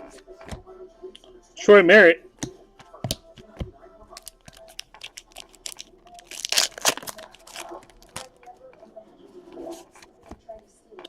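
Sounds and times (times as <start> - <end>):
cards shuffling: 4.1 - 8.5
card pack wrapper tearing: 4.2 - 8.4.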